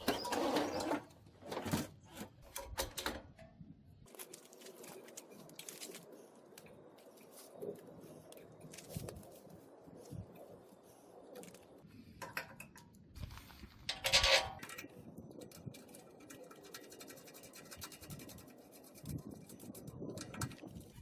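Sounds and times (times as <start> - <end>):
metal parts clicking and scraping: 13.4 - 21.0
metal clank: 13.9 - 14.9.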